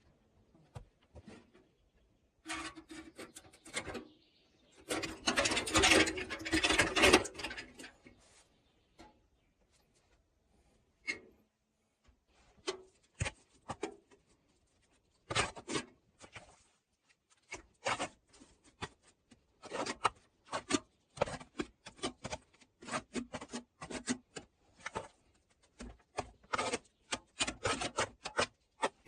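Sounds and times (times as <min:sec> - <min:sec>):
materials scraping and rubbing: 0:02.4 - 0:04.2.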